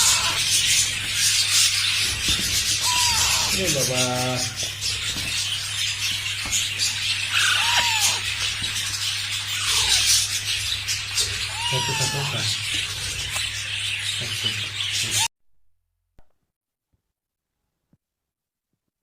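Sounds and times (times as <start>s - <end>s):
meow-like calls: 0.0s - 0.4s, 2.8s - 3.6s, 7.3s - 8.2s, 11.5s - 12.4s.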